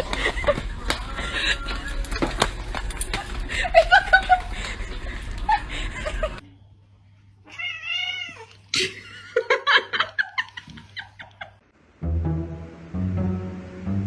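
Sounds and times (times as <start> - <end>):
cat meowing: 7.5 - 8.7.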